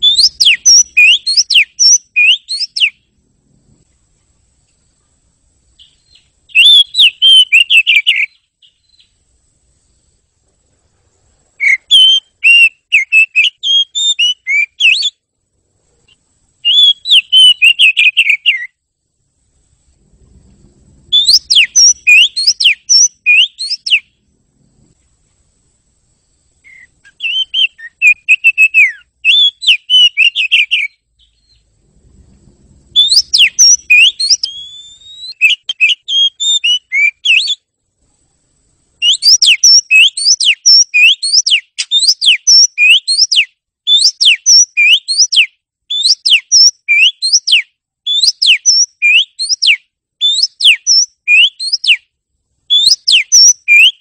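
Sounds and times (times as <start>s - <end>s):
bird singing whistled song: 0.0s - 3.1s, 5.8s - 9.2s, 11.6s - 15.2s, 16.1s - 18.8s, 21.0s - 24.2s, 26.6s - 31.7s, 32.9s - 37.7s, 39.0s - 52.1s, 52.7s - 54.0s.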